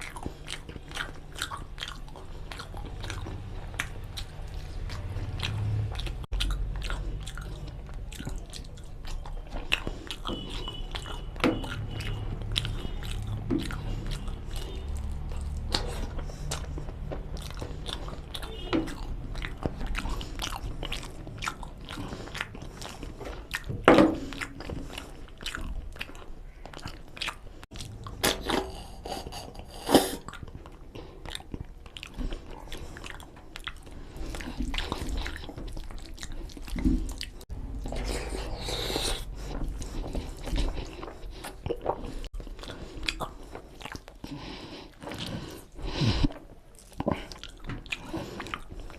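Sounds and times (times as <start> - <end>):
wet mouth clicks and smacks: 0.0 - 38.6
chewing and biting food: 0.0 - 48.9.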